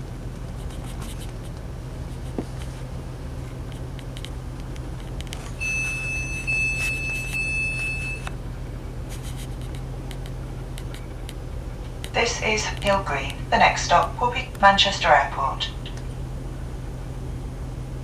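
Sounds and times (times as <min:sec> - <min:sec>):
train interior low hum: 0:00.0 - 0:18.0
high electronic warning tone: 0:05.6 - 0:08.3.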